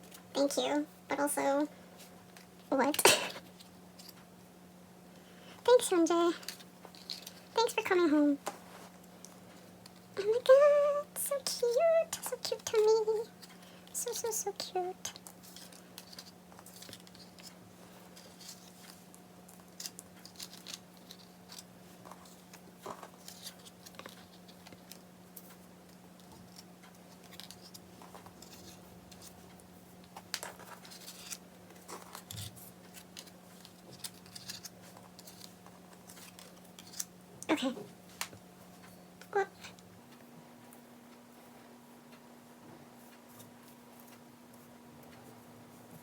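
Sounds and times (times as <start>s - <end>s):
steady electrical hum: 0.0s - 46.0s
card and plastic clicks and scrapes: 15.2s - 37.1s.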